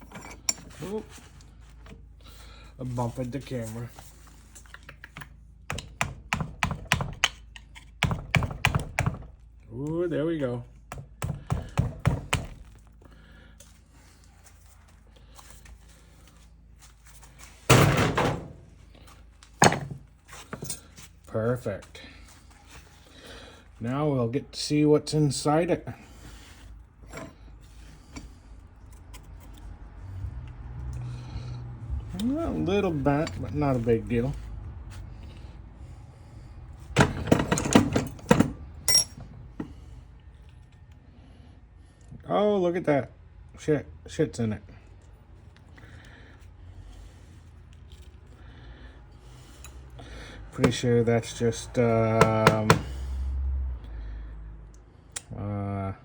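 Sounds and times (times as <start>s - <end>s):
metal tools knocking on workbench: 19.6s - 20.0s
small metal parts clattering: 37.0s - 39.2s
ringing metal clink: 38.9s - 39.2s.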